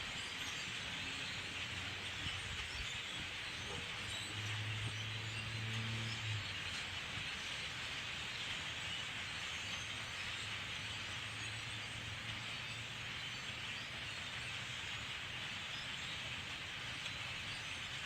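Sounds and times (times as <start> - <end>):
flock of birds chirping: 0.0 - 18.0.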